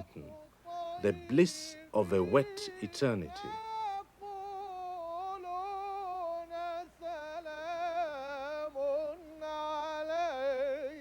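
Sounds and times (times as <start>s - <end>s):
person chanting: 0.0s - 11.0s.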